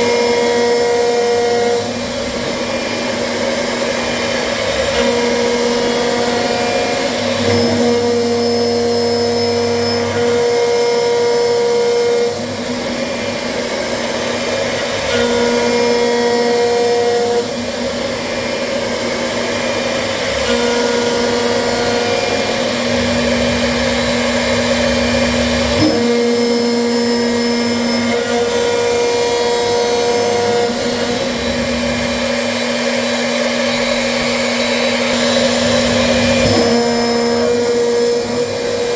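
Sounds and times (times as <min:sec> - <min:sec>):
machine motor whirring: 0:00.0 - 0:38.9
humming motor tone: 0:03.5 - 0:12.9, 0:20.2 - 0:38.9.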